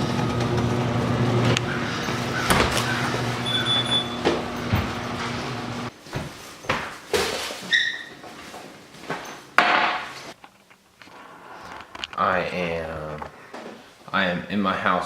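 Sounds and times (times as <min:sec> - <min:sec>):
short electronic beep: 0:03.4 - 0:04.2.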